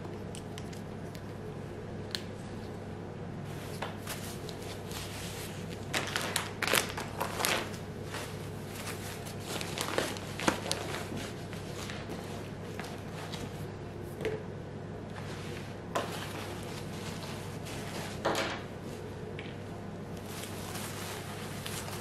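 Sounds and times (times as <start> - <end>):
steady low hum: 0.0 - 22.0
rustling: 3.5 - 13.6, 20.2 - 22.0.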